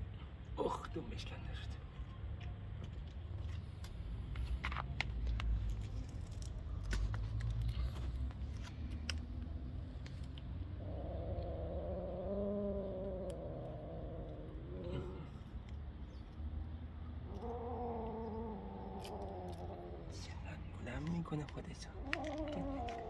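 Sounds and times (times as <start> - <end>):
light clicks and rustling: 1.6 - 10.5, 20.8 - 23.0
kitten crying: 17.3 - 20.2, 22.0 - 23.0.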